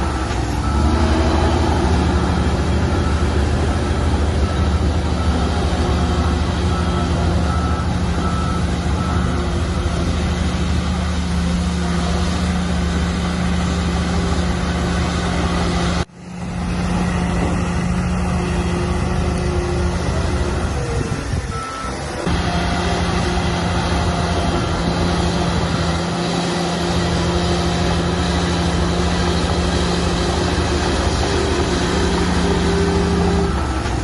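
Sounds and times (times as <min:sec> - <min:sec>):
reversing beeper: 0:00.0 - 0:10.3
heavy diesel engines running: 0:00.0 - 0:34.0.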